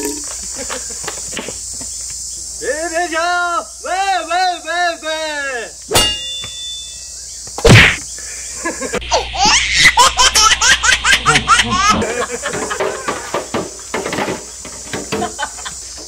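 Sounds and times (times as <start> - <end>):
high-pitched giggling laughter: 8.6 - 12.6.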